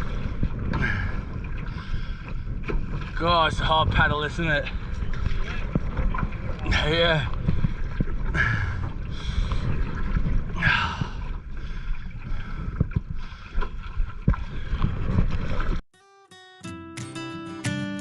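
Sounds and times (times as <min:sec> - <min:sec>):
paddles knocking and splashing: 0:00.0 - 0:15.8
water noise: 0:00.0 - 0:15.8
wind buffeting microphone: 0:00.0 - 0:15.8
acoustic guitar music: 0:15.9 - 0:18.0.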